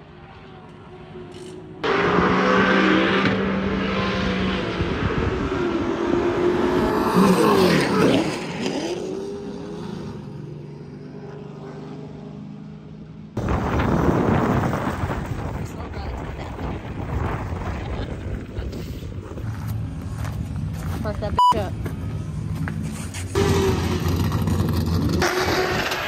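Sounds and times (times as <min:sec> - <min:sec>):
car engines at high revs: 0:00.0 - 0:13.4, 0:21.8 - 0:26.0.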